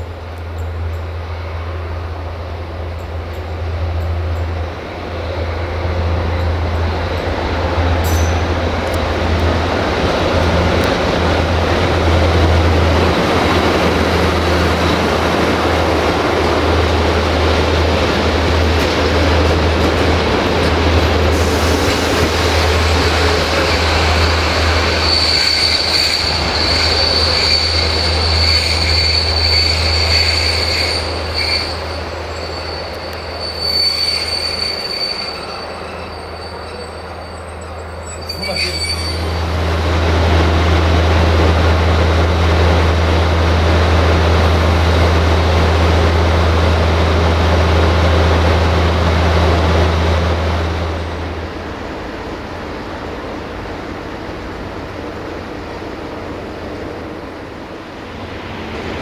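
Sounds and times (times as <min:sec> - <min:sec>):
diesel locomotive engine humming: 0:00.0 - 0:59.0
train wheels squealing: 0:23.7 - 0:39.5.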